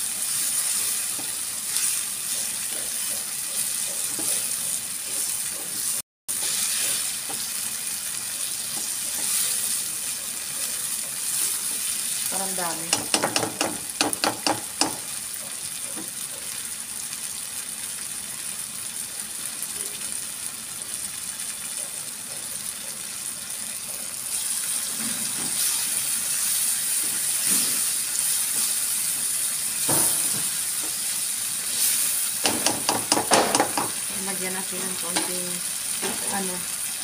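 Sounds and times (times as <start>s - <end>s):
vegetables sizzling in a frying pan: 0.0s - 37.0s
spatula clicking against pan: 12.9s - 15.1s, 32.4s - 34.0s.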